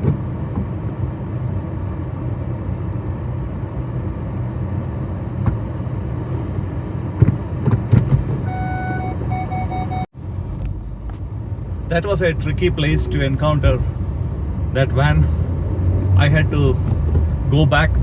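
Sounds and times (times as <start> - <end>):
car rumbling from inside: 0.0 - 18.0
parking sensor warning tone: 8.4 - 10.1.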